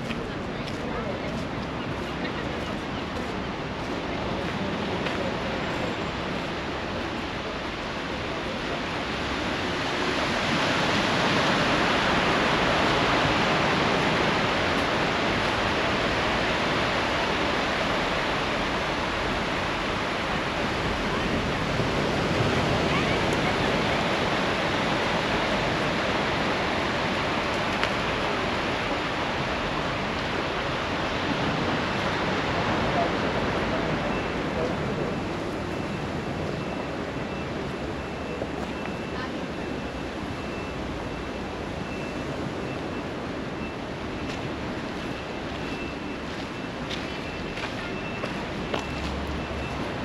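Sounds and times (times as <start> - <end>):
water rushing: 0.0 - 50.0.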